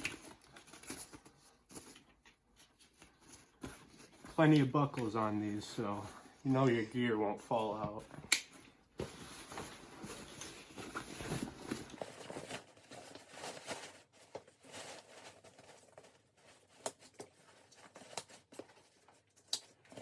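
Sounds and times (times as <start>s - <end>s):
fabric and straps rustling: 8.9s - 16.7s.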